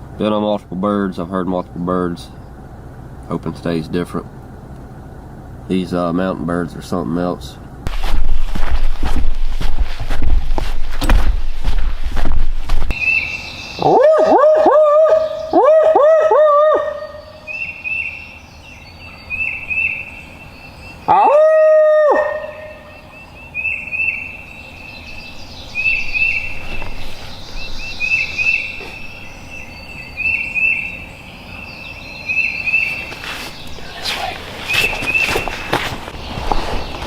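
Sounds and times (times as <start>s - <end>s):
small birds chirping: 12.8s - 15.6s, 16.7s - 21.2s, 22.4s - 37.0s
lower bird call: 12.9s - 37.0s.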